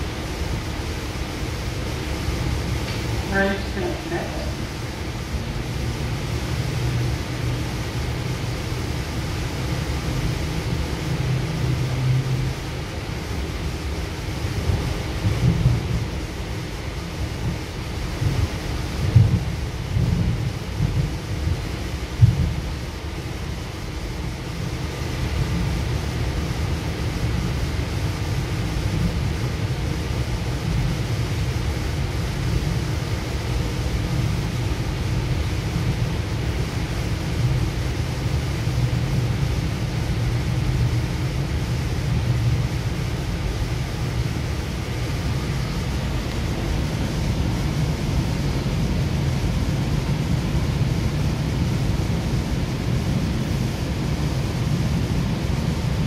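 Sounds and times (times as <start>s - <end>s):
faint hiss: 0.0s - 6.6s
even hiss: 0.0s - 56.0s
train deep rumble: 0.0s - 56.0s.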